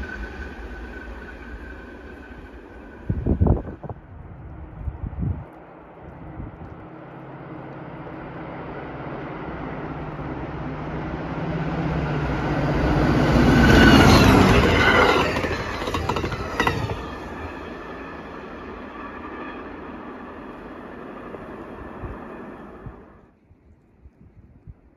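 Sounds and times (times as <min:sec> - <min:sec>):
diesel locomotive engine rumble: 0:00.0 - 0:23.8
train wheels clattering over rail joints: 0:13.4 - 0:17.8.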